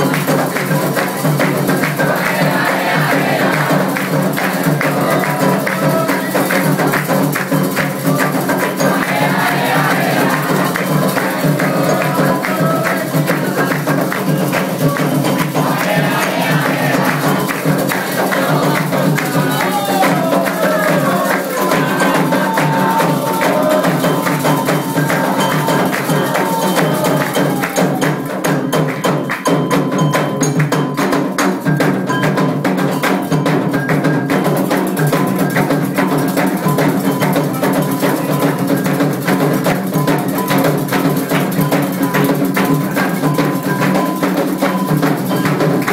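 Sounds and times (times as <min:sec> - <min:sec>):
voices singing: 0:00.0 - 0:28.2
hand drums playing fast rhythm: 0:00.0 - 0:45.9.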